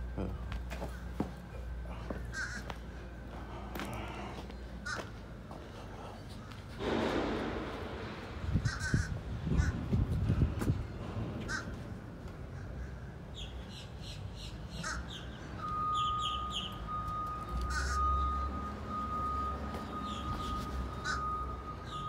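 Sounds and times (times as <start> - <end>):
crows cawing: 1.9 - 3.0, 3.7 - 5.2, 8.6 - 9.9, 11.4 - 13.2, 14.7 - 15.4, 17.6 - 18.2, 21.0 - 21.4.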